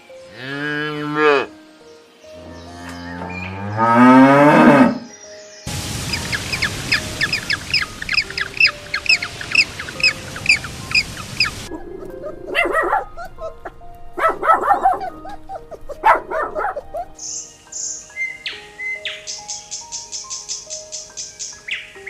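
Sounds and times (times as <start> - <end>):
hiss: 5.7 - 11.7
dog barking: 11.7 - 17.2.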